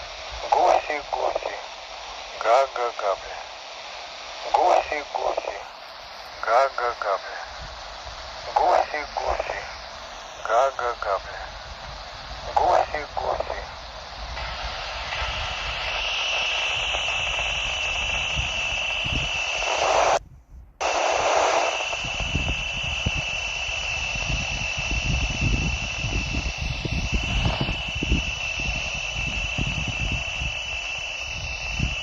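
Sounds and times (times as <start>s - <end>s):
radio receiver hiss: 0.0s - 20.2s, 20.8s - 32.0s
steady high whistle: 12.1s - 20.2s, 20.8s - 32.0s.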